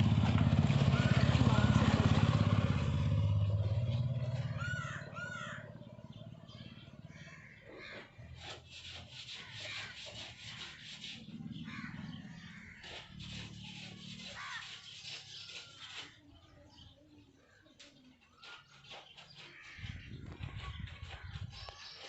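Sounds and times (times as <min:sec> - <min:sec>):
motorcycle engine humming: 0:00.0 - 0:07.6
fingers scratching through hair: 0:08.4 - 0:11.2, 0:12.8 - 0:16.2
bird chirping: 0:08.7 - 0:22.0.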